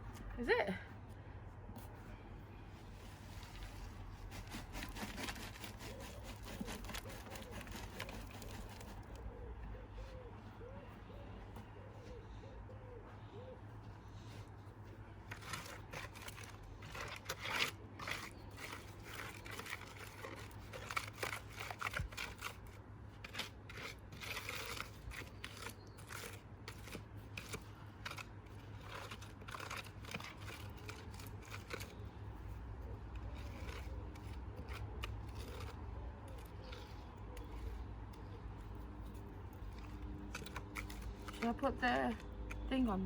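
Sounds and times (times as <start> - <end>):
hand tool scraping cement mix: 3.3 - 9.2, 15.3 - 37.9.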